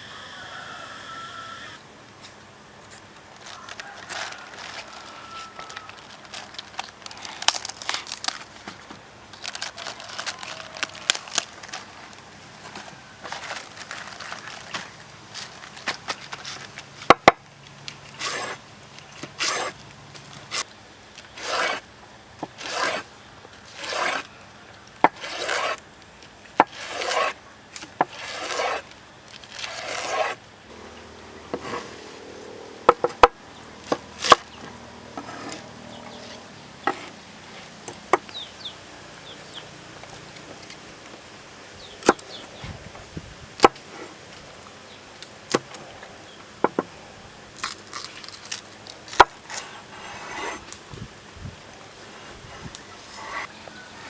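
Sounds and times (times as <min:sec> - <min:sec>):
hand scraping rough surface: 0:18.0 - 0:18.6, 0:19.2 - 0:20.7, 0:21.3 - 0:21.8, 0:22.4 - 0:24.4, 0:25.1 - 0:25.8, 0:26.6 - 0:27.4, 0:28.0 - 0:30.8, 0:31.4 - 0:34.6, 0:35.2 - 0:37.7, 0:48.0 - 0:51.0, 0:52.0 - 0:54.0.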